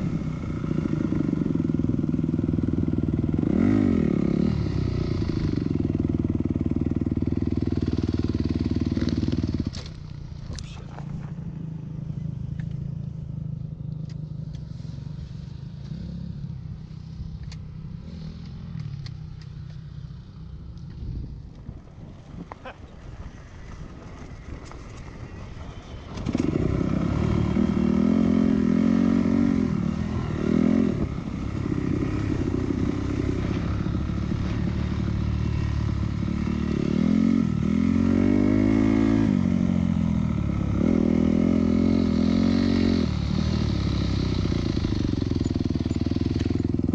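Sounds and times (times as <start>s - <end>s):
dirt bike engine revving: 26.1s - 46.9s.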